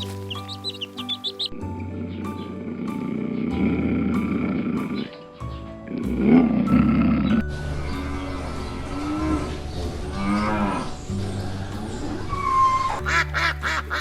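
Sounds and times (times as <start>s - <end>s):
background music: 0.0s - 14.0s
cow mooing: 6.0s - 11.0s.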